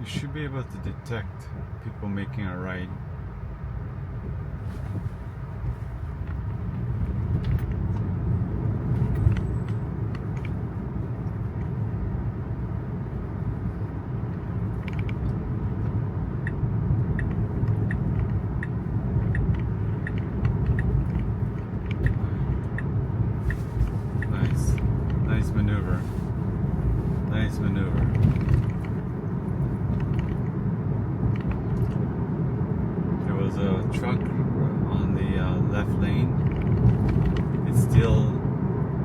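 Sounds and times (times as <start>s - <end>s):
road and tyre noise: 0.0s - 39.0s
turn signal ticking: 5.4s - 32.9s.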